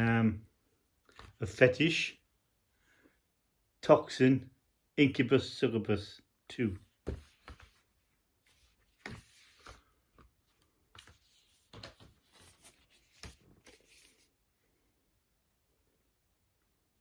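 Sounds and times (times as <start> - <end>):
rustling of packaging being handled: 7.0 - 14.4.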